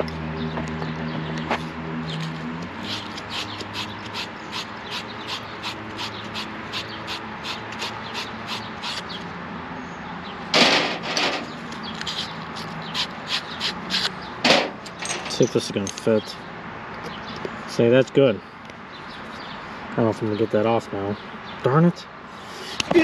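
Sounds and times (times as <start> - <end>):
hand scraping on copper pipe: 2.8 - 9.1, 11.9 - 14.1.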